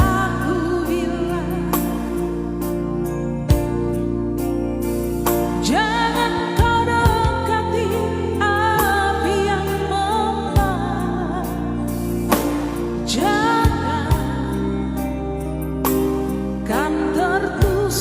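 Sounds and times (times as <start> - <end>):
person singing with vibrato: 0.0 - 2.8, 5.6 - 12.3, 12.9 - 15.5, 16.6 - 18.0
bass notes: 0.0 - 18.0
instrumental backing: 0.0 - 18.0.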